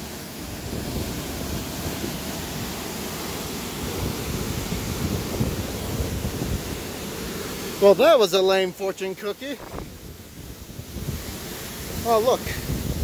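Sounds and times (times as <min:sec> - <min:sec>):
steady rushing noise: 0:00.0 - 0:13.0
wind buffeting microphone: 0:03.8 - 0:06.9, 0:09.6 - 0:13.0.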